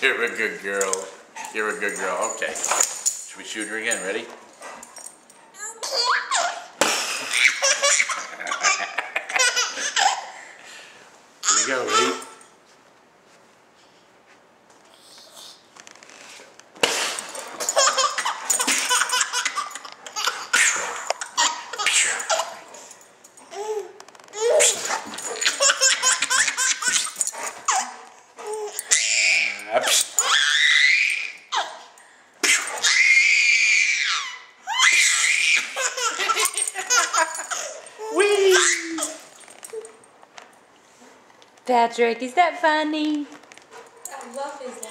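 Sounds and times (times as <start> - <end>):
baby laughing: 5.6 - 10.4, 11.4 - 12.3, 17.6 - 22.7, 23.4 - 29.2, 34.0 - 40.0.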